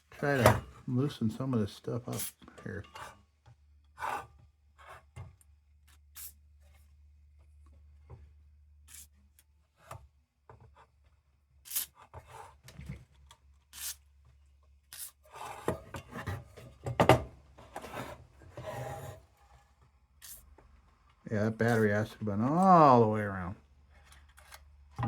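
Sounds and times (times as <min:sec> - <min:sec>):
scraping and rubbing on metal: 0:02.0 - 0:03.3, 0:14.9 - 0:16.8, 0:17.6 - 0:20.6, 0:21.6 - 0:22.2.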